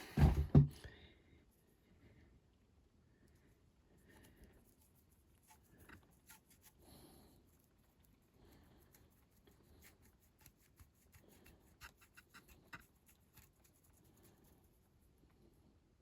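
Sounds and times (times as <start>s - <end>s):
scratching and rubbing on toy model: 4.0s - 15.6s.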